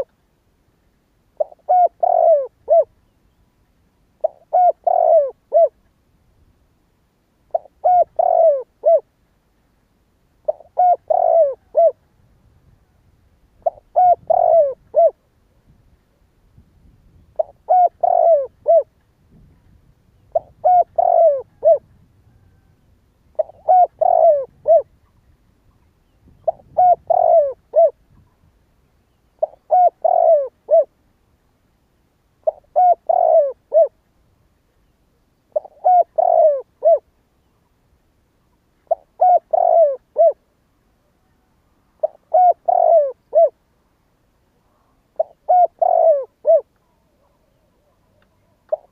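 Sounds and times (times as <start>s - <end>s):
dove cooing: 1.4s - 3.0s, 4.2s - 5.8s, 7.5s - 9.1s, 10.4s - 13.0s, 13.6s - 15.3s, 17.2s - 19.0s, 20.2s - 25.2s, 26.3s - 28.3s, 29.3s - 31.0s, 32.4s - 34.0s, 35.5s - 37.1s, 38.8s - 40.5s, 42.0s - 43.6s, 44.6s - 48.9s.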